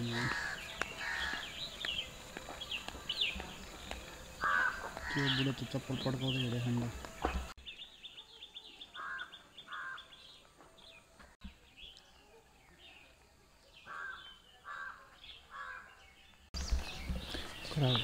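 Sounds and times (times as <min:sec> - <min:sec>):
harsh caw-like bird calls: 0:00.0 - 0:01.6, 0:04.4 - 0:05.6, 0:09.0 - 0:10.1, 0:13.9 - 0:15.9.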